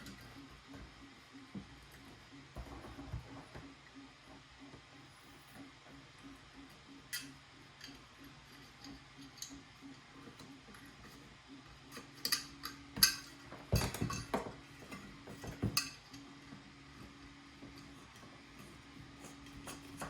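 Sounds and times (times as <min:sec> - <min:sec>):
tools clicking and clinking: 0:11.9 - 0:16.2.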